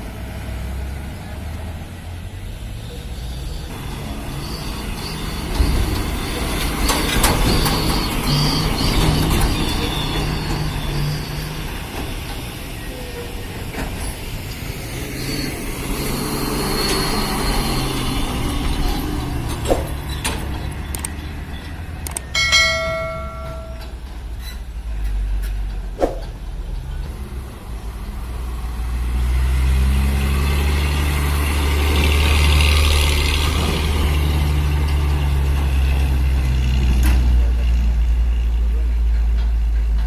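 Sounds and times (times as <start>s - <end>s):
truck diesel engine rumbling: 0.0s - 40.0s
sharp clicks: 20.9s - 21.2s, 22.0s - 22.3s
brief ringing tone: 22.4s - 24.0s.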